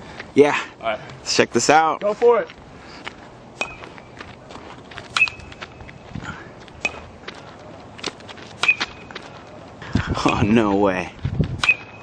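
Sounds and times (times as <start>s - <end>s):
sharp knocks with metallic ping: 3.6s - 3.9s, 5.1s - 5.5s, 8.6s - 9.1s, 11.6s - 12.0s.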